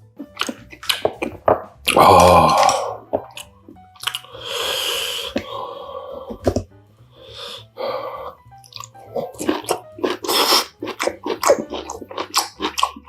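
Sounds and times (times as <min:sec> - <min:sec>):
person chewing food: 0:00.0 - 0:13.0
wet mouth clicks: 0:00.2 - 0:05.6, 0:08.6 - 0:13.0
breathy slurps: 0:00.2 - 0:13.0.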